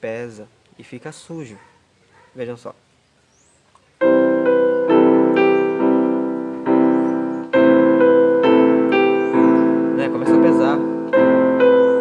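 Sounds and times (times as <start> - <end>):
piano chords on keyboard: 4.0 - 12.0.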